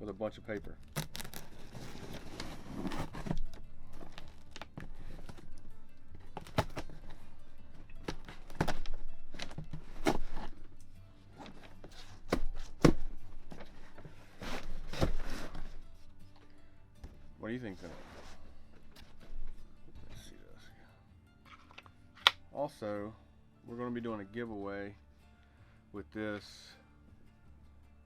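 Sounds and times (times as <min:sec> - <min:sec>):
cardboard scraping and rustling: 0:00.8 - 0:07.4, 0:08.0 - 0:10.8, 0:11.4 - 0:15.9, 0:17.1 - 0:19.4
knocks and thunks of box contents: 0:00.9 - 0:10.8, 0:11.4 - 0:15.8.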